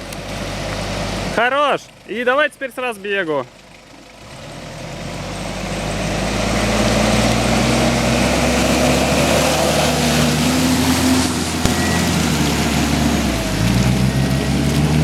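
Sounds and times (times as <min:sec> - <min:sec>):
wheels churning through mud: 0:03.5 - 0:15.0
engine revving hard: 0:04.2 - 0:15.0.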